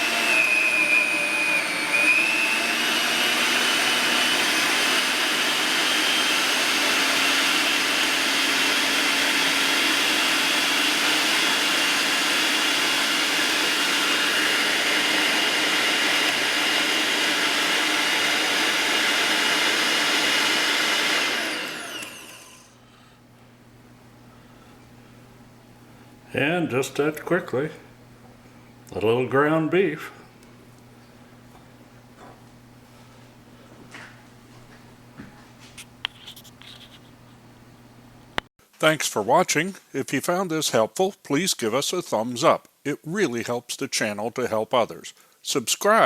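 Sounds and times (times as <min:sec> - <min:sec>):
meat grinder motor whining: 0:00.0 - 0:22.8.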